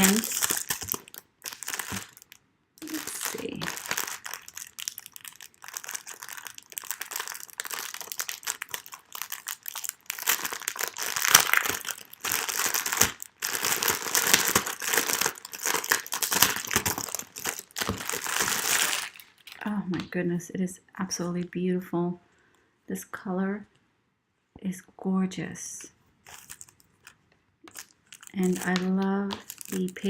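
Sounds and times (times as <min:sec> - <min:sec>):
packaging crinkling: 0:00.0 - 0:19.8, 0:26.2 - 0:30.0.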